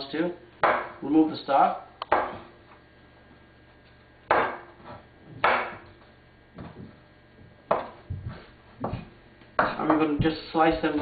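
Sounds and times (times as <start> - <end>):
knife chopping on cutting board: 0.6 - 0.9, 5.4 - 5.8.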